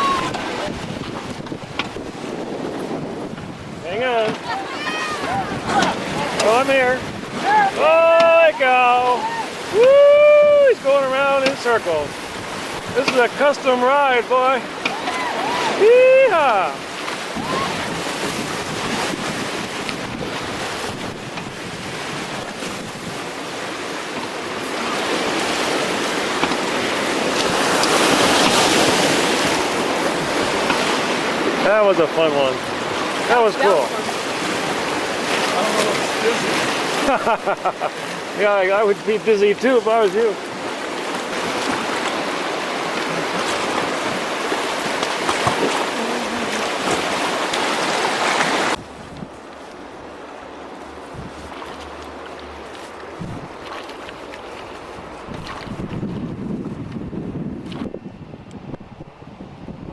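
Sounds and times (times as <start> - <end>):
rushing whitewater: 0.0 - 56.6.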